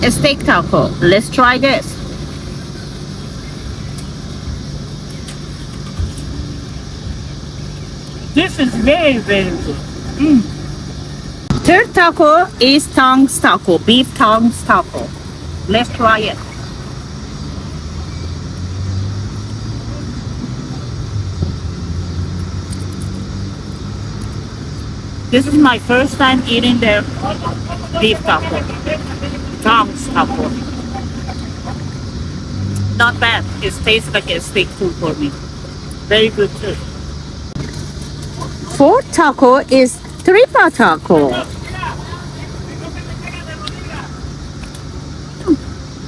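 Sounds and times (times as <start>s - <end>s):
motor idling hum: 0.0s - 46.0s
faint clicks: 3.9s - 4.2s, 22.4s - 24.9s, 44.6s - 45.6s.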